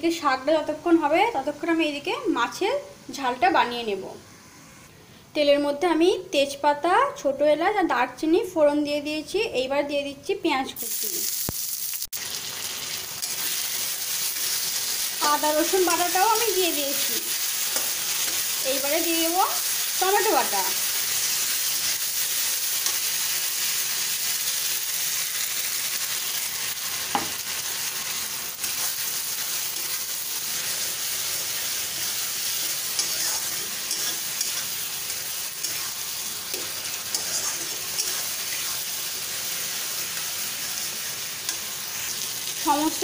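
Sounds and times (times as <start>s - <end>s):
food sizzling in oil: 10.8s - 43.0s
spatula scraping pan: 29.8s - 38.9s.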